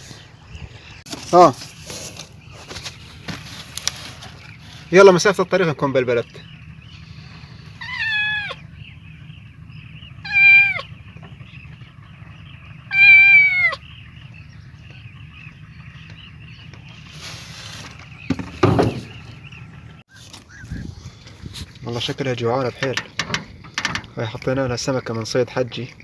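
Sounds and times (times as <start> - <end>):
rustling: 1.1 - 4.9, 16.9 - 19.3
steady low rumble: 2.2 - 12.9
cat meowing: 7.8 - 8.6, 10.2 - 10.9, 12.9 - 13.8
loud knock: 18.3 - 19.2.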